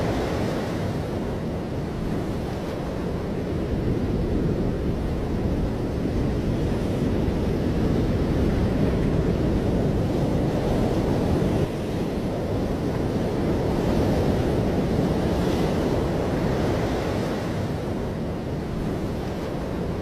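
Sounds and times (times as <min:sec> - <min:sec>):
waves surging: 0:00.0 - 0:20.0
wind buffeting microphone: 0:00.0 - 0:20.0.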